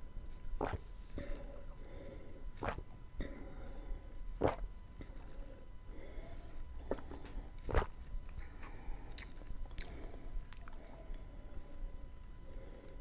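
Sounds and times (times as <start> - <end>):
mouth chewing food: 0.6 - 1.4, 2.6 - 2.9, 6.8 - 11.3.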